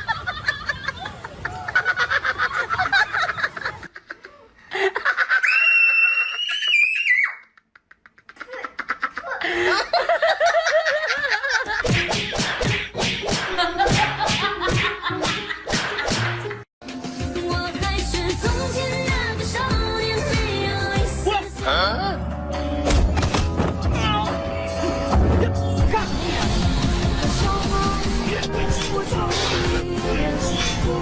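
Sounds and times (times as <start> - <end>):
people laughing: 0.0 - 5.6, 7.6 - 11.9
music with a beat: 16.8 - 21.3, 26.1 - 31.0.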